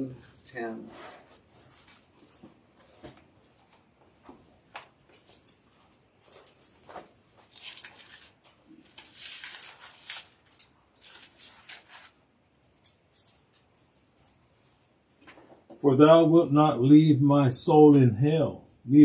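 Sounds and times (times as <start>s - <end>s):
book pages rustling: 1.3s - 12.2s.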